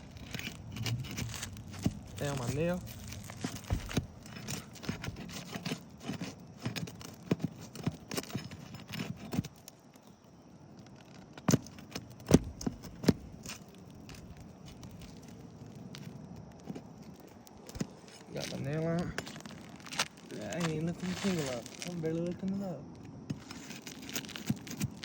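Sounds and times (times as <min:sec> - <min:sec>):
hand tool tapping and scraping nail: 0:00.1 - 0:09.8, 0:10.8 - 0:15.2, 0:23.3 - 0:25.0.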